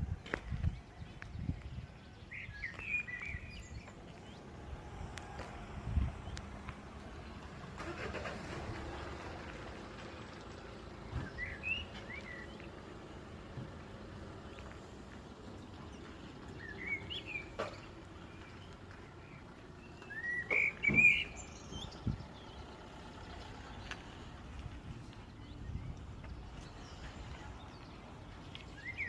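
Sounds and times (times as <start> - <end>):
bird singing warbled phrases: 0.3 - 4.8, 11.1 - 12.8, 15.8 - 24.3, 25.1 - 29.0.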